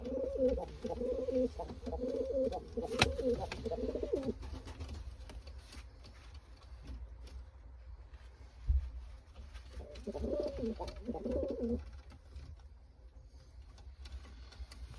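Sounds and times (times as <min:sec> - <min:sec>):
pigeon cooing: 0:00.0 - 0:04.4, 0:09.8 - 0:11.8.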